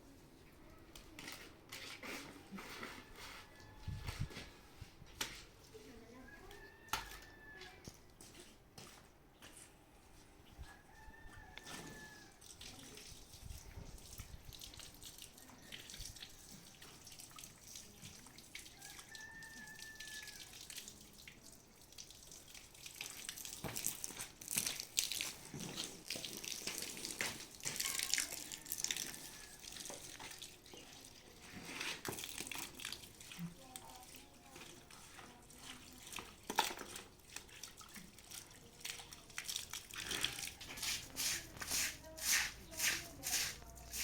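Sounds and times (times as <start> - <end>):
water splashing and trickling: 10.5 - 44.0.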